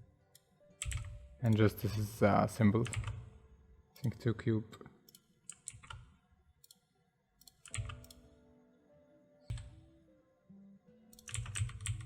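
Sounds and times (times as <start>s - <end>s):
keyboard key presses: 0.8s - 1.6s, 7.4s - 8.2s, 9.5s - 9.8s, 11.2s - 12.0s.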